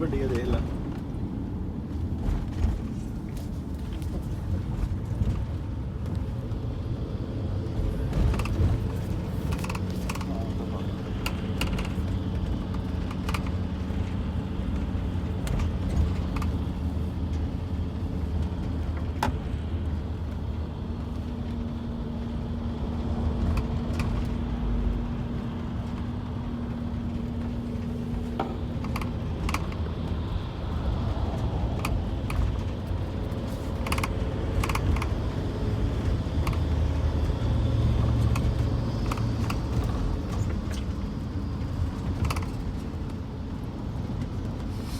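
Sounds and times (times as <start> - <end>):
car engine and road rumble: 0.0 - 44.9
sharp clicks and rattles: 7.7 - 20.3, 23.0 - 24.4, 27.1 - 44.7.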